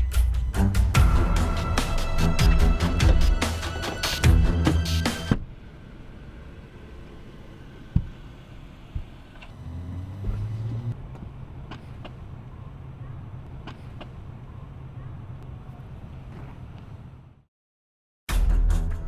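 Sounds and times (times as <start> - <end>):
car engine idling: 0.9 - 17.4.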